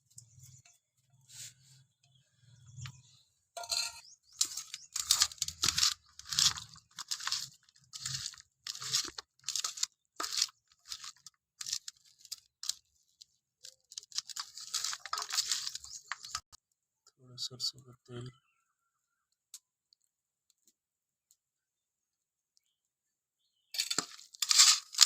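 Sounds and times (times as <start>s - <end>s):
fish being mixed crunching: 4.3s - 16.5s, 23.8s - 25.0s.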